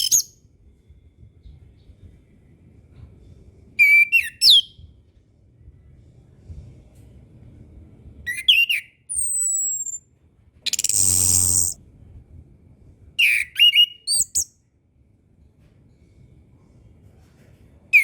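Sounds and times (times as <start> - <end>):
thrush whistled song: 0.0 - 0.4, 3.8 - 4.8, 8.3 - 10.0, 10.7 - 11.8, 13.2 - 14.5
harsh buzzy bird note: 10.7 - 11.8.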